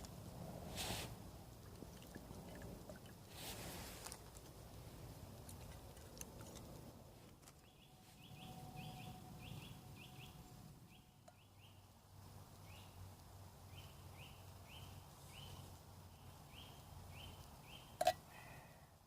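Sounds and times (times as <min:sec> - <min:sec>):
small bird chirping: 0:07.5 - 0:11.9.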